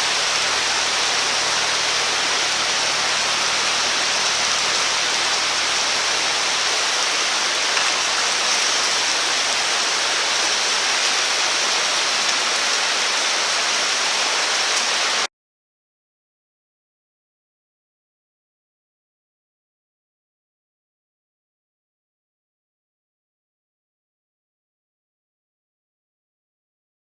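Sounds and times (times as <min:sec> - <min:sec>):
water hissing: 0:00.0 - 0:15.3.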